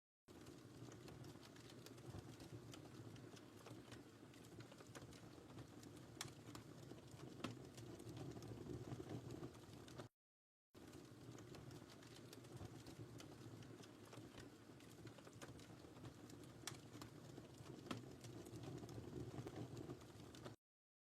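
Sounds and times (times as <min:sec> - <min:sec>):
fire pops and crackles: 0:00.3 - 0:10.1, 0:10.8 - 0:20.6
low rumble of flames: 0:00.3 - 0:10.1, 0:10.8 - 0:20.6.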